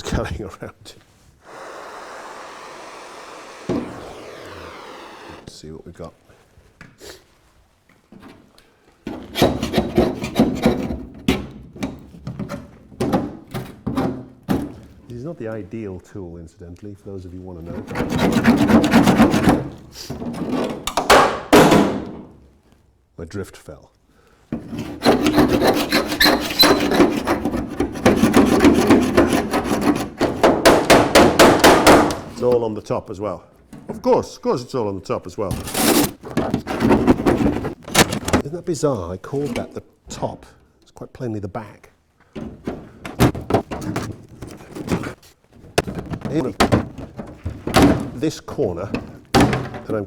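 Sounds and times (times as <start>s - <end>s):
hand tool scraping filler: 1.4s - 5.5s, 9.1s - 14.2s, 17.6s - 21.5s, 24.5s - 32.7s, 35.4s - 38.4s, 42.4s - 50.0s.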